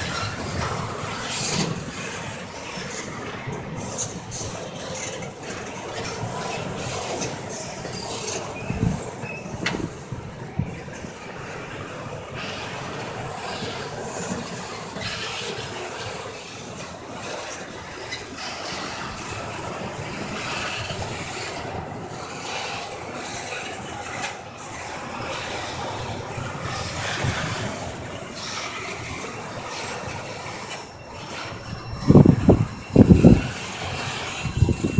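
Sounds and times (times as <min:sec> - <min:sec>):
freight train wheels on rails: 0:00.0 - 0:34.9.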